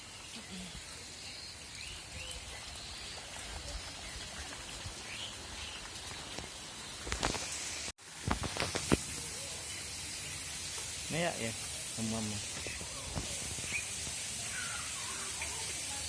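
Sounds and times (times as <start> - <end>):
steady outdoor hiss: 0.0 - 16.0
faint bird chirps: 12.6 - 16.0.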